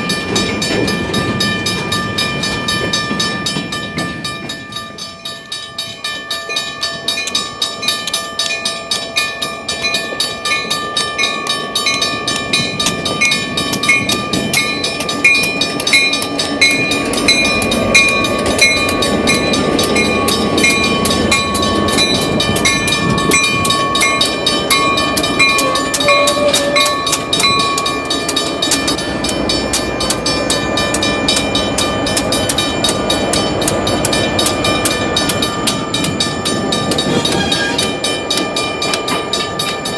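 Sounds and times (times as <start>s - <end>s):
train wheels clicking over rail joints: 0.0s - 39.9s
high-pitched squeal: 36.9s - 38.1s.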